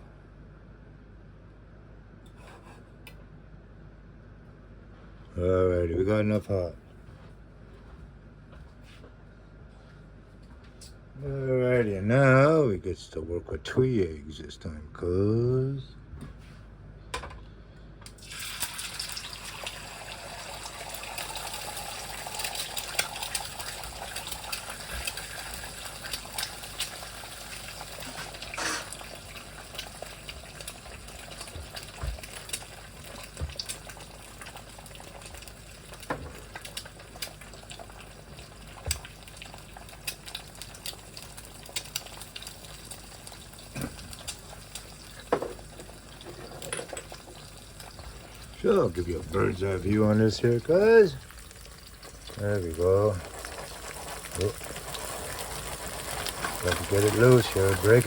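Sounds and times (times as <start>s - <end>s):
eggs sizzling in a pan: 18.1s - 58.0s
fat popping and crackling: 26.0s - 58.0s.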